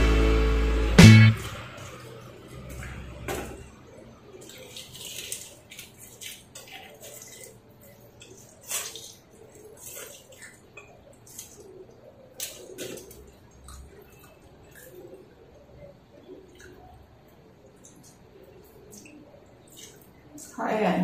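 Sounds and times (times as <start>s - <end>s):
wet chewing mouth sounds: 4.4s - 20.5s.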